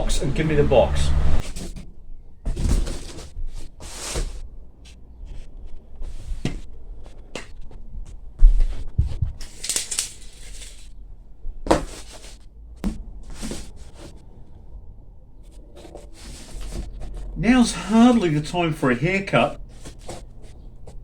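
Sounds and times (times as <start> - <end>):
cardboard rustling and scraping: 11.7 - 12.4, 13.3 - 14.2.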